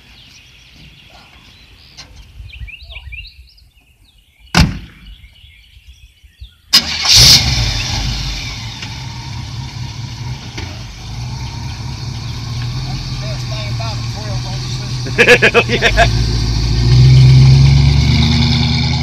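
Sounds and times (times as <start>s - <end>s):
birds chirping: 0.0s - 17.9s
car engine starting and running: 6.7s - 19.0s.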